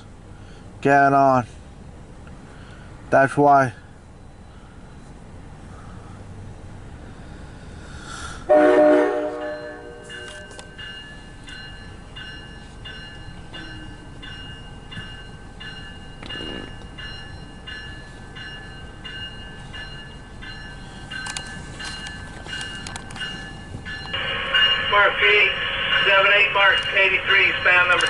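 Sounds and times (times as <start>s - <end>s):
bell ringing: 9.4s - 28.0s.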